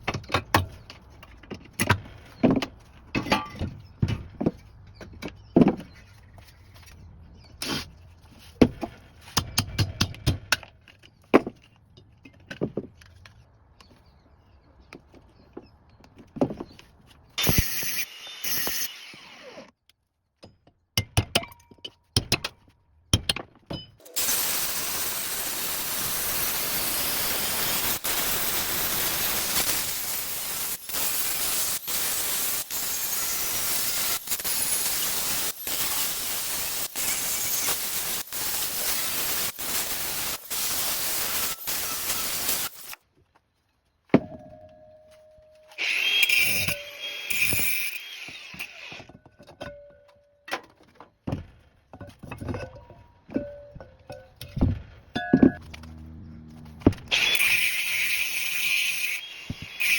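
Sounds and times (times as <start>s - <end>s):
power tool cutting metal: 17.4s - 19.7s, 24.0s - 43.0s, 45.8s - 49.1s, 56.9s - 59.9s.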